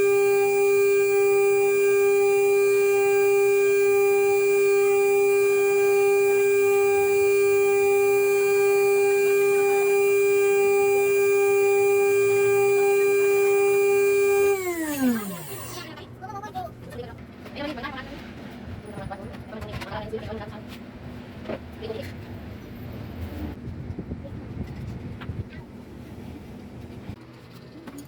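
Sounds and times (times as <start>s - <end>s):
router spindle whine: 0.0s - 16.1s.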